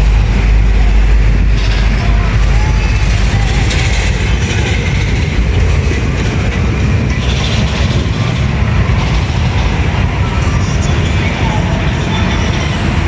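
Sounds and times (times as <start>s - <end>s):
vehicle road noise rumble: 0.0s - 13.0s.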